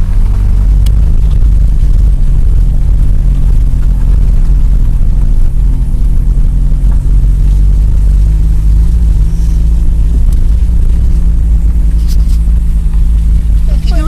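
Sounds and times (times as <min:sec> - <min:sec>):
car engine and tyre drone: 0:00.0 - 0:14.0.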